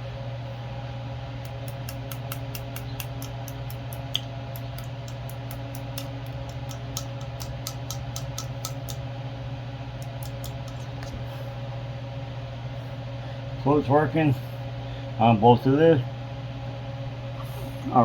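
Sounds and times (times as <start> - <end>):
steady motor hum: 0.0 - 18.0.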